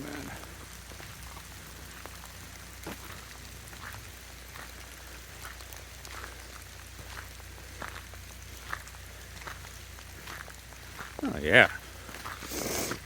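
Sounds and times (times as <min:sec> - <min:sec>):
water dripping from trees: 0:00.0 - 0:13.0.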